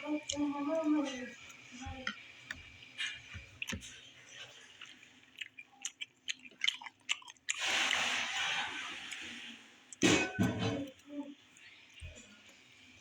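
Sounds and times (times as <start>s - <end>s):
person chewing rice: 1.5s - 10.0s
wet mouth clicks: 4.8s - 8.1s.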